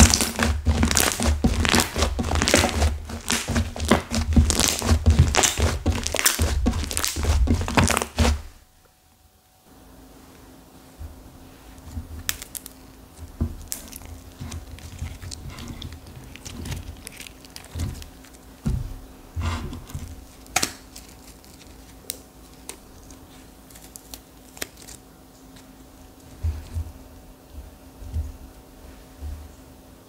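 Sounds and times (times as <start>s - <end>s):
dull thumps: 0.0s - 8.6s, 13.2s - 20.3s
slime squishing: 0.0s - 8.6s, 11.7s - 27.0s
clay crackling snaps: 0.0s - 8.9s, 11.8s - 18.6s, 19.8s - 25.8s.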